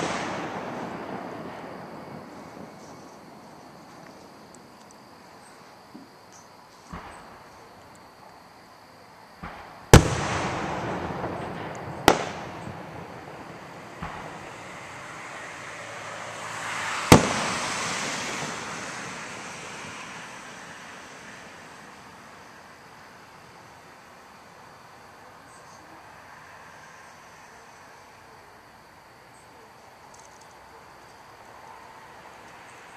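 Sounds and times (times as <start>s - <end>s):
fireworks hissing: 0.0s - 4.6s, 9.4s - 22.6s
fireworks bangs: 0.0s - 5.2s, 6.8s - 7.6s, 9.4s - 22.8s.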